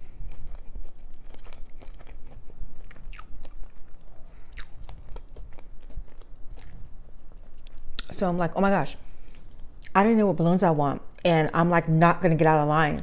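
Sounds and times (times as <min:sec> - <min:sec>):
person chewing food: 0:00.0 - 0:08.1.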